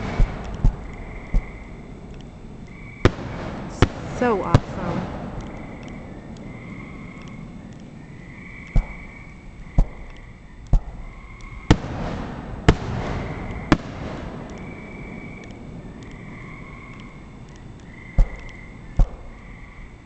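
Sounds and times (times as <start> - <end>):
fireworks bursting with bangs: 0.0 - 2.2, 3.0 - 6.1, 8.6 - 10.1, 11.7 - 16.1
rumbling echo: 0.0 - 19.6
steady high chirring: 0.0 - 20.0.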